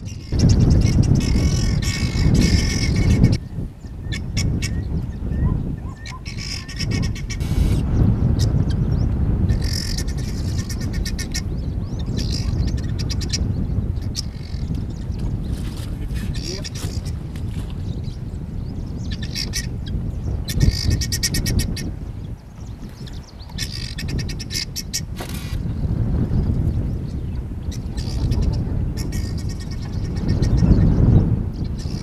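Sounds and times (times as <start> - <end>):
birds chirping and twittering: 0.0 - 32.0
loud low rumbling: 7.3 - 8.2.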